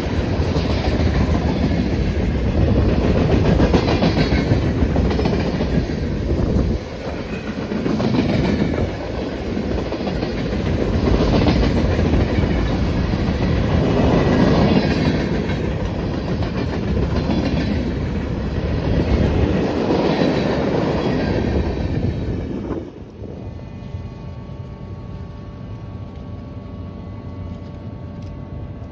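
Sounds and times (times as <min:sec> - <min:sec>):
clickety-clack over rail joints: 0:00.0 - 0:23.2
train wheels rumbling on rails: 0:00.0 - 0:28.9.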